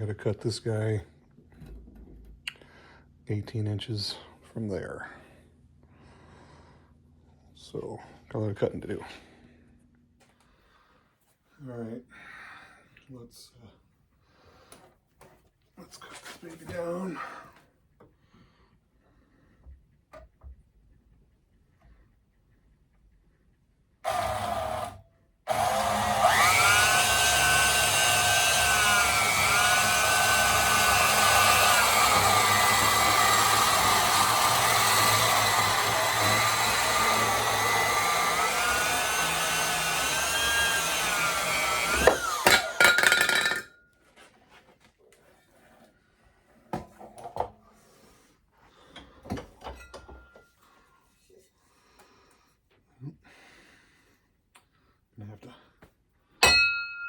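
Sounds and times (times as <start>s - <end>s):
power saw cutting steel: 24.0s - 43.7s.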